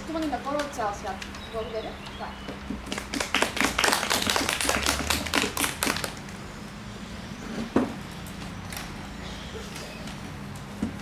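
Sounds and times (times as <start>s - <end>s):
audience applause: 3.0s - 6.2s.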